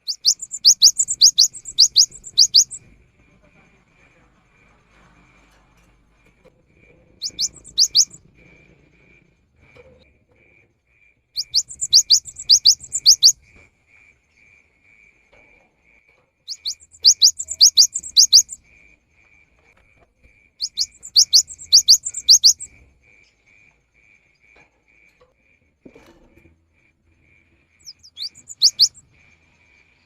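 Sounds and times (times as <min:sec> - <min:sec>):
bird singing high notes: 0:00.0 - 0:02.8, 0:07.2 - 0:08.2, 0:11.4 - 0:13.4, 0:16.5 - 0:18.6, 0:20.6 - 0:22.7, 0:27.8 - 0:29.0.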